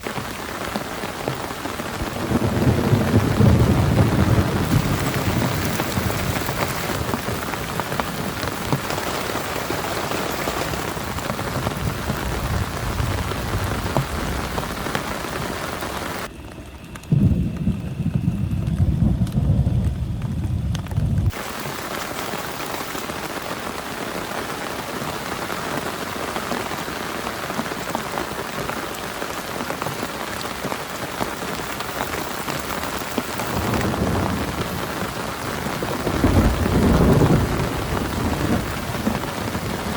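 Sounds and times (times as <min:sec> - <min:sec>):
heavy rain hissing: 0:00.0 - 0:39.9
deep thunder rumble: 0:00.2 - 0:21.6, 0:29.8 - 0:39.9.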